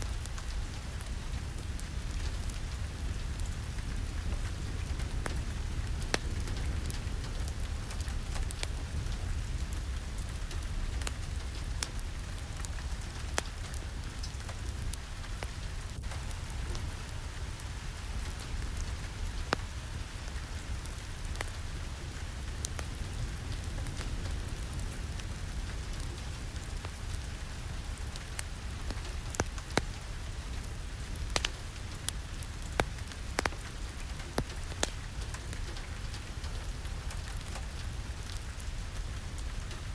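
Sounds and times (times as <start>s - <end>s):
fireplace crackling: 0.0s - 39.9s
steady rain: 0.0s - 39.9s
sharp pops and taps: 31.3s - 31.6s, 32.7s - 33.6s, 34.4s - 35.0s.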